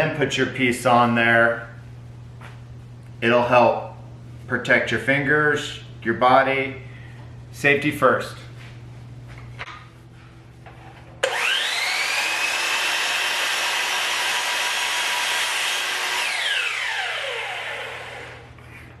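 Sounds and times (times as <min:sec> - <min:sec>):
chop saw motor whine: 0:11.2 - 0:18.5.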